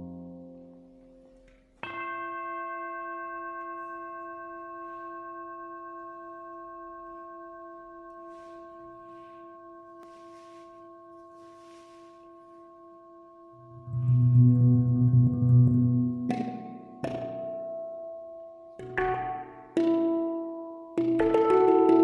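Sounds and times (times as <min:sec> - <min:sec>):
faint soft rustling: 0:03.5 - 0:14.1
handpan note ringing: 0:11.4 - 0:22.0.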